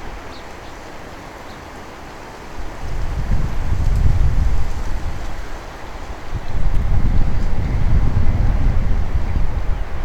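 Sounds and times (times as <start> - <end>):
gusty wind buffeting microphone: 2.5 - 10.0.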